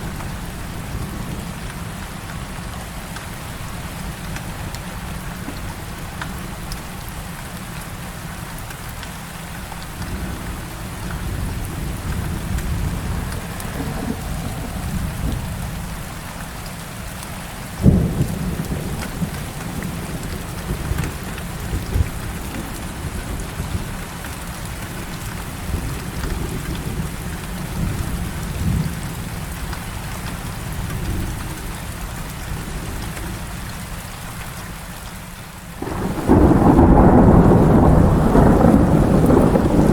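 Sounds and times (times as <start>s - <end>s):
heavy rain: 0.0s - 39.9s
thunder rumbling: 9.9s - 16.3s, 17.8s - 29.4s, 35.8s - 39.9s
sharp thunderclap: 11.4s - 16.0s, 35.8s - 39.9s.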